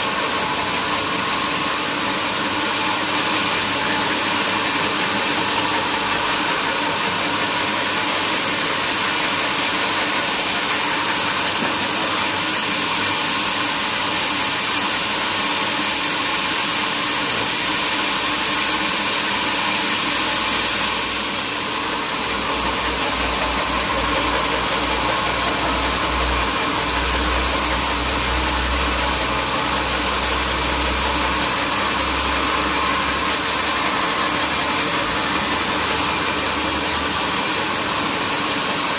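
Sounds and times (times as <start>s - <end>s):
sawmill machinery hissing and humming: 0.0s - 38.9s.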